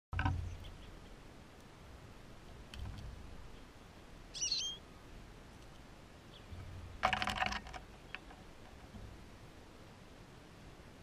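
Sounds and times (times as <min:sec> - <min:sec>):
clicking and rustling at feeder: 0:00.2 - 0:00.7, 0:02.7 - 0:03.2, 0:06.6 - 0:09.3
bird chirp: 0:00.2 - 0:01.2, 0:03.4 - 0:04.9, 0:06.2 - 0:06.9.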